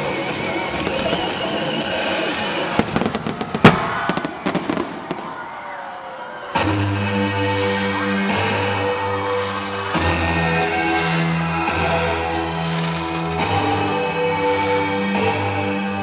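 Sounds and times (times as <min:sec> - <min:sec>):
fireworks crackling and bursting: 0:00.0 - 0:05.9, 0:09.2 - 0:15.0
music with heavy bass: 0:06.6 - 0:16.0.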